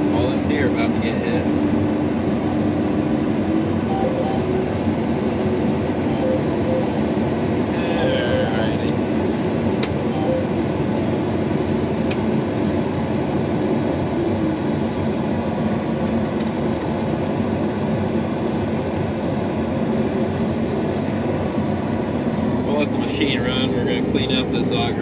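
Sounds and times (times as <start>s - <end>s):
combine harvester drone: 0.0s - 25.0s.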